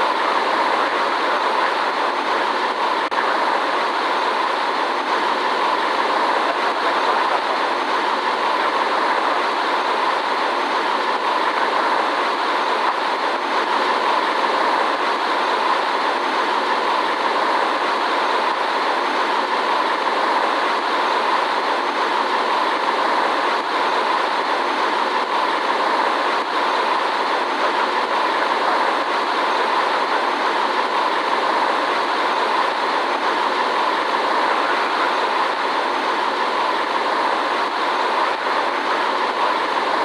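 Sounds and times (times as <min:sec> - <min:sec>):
airliner cabin airflow and engine: 0:00.0 - 0:40.0.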